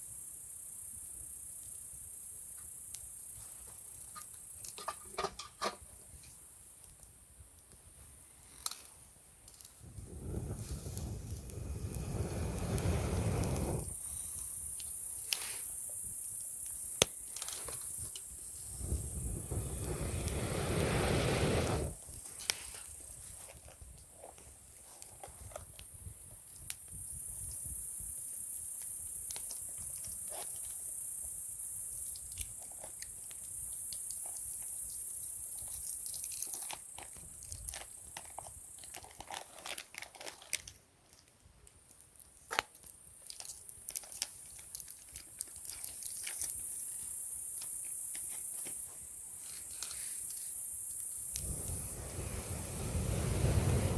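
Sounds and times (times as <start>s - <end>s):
campfire crackling: 2.8s - 27.0s, 28.6s - 53.9s
fire pops and snaps: 4.0s - 28.0s, 28.8s - 53.9s
low rushing noise: 9.9s - 13.9s, 18.7s - 22.0s, 51.3s - 53.9s.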